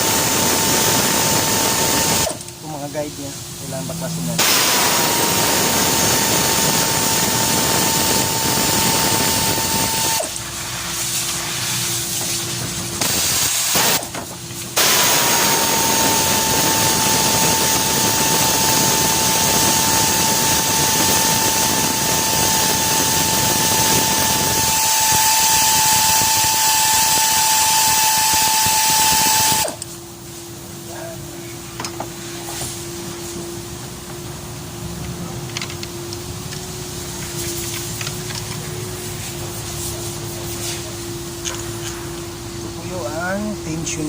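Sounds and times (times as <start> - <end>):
power tool whining: 0.0 - 2.5, 4.4 - 10.4, 13.0 - 30.0.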